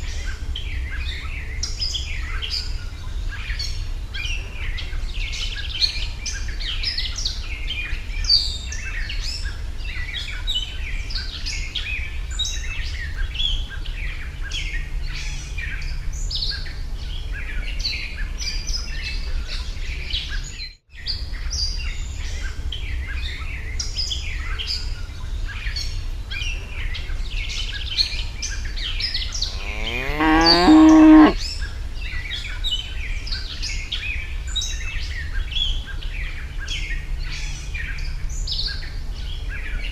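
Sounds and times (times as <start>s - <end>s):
cow mooing: 29.4s - 31.4s.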